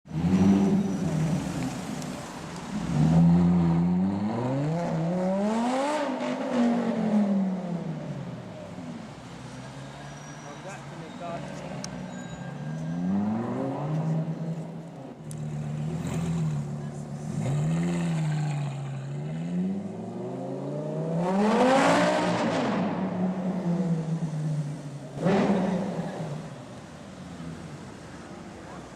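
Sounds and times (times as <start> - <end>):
sports car engine revving: 15.4 - 26.5.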